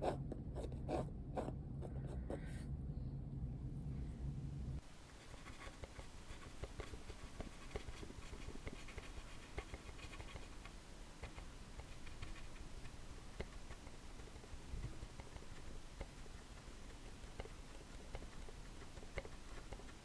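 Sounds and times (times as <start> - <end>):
low hum: 0.0 - 4.8
scratching and tapping on hard surface: 5.7 - 20.0.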